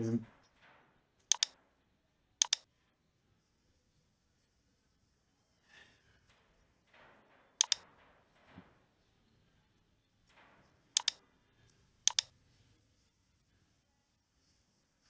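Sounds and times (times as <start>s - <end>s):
computer mouse double-clicks: 1.3s - 1.5s, 2.4s - 2.6s, 11.0s - 11.2s, 12.1s - 12.3s
faint soft rustling: 2.8s - 15.0s.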